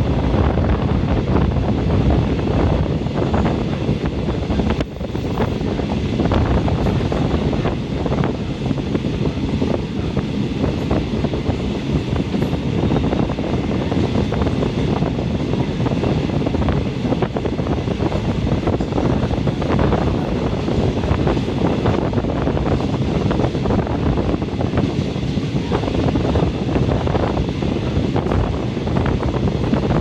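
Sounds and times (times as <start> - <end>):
train wheels rumbling on rail: 0.0 - 30.0
wind noise: 0.0 - 30.0.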